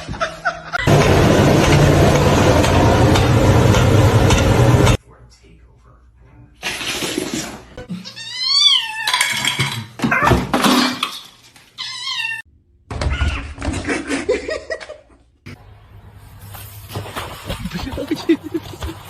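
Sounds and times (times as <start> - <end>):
cat meowing: 8.0 - 9.3.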